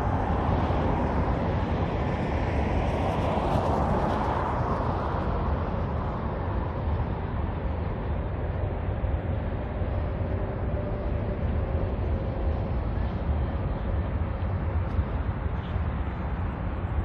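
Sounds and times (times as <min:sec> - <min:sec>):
low traffic rumble: 0:00.0 - 0:17.0.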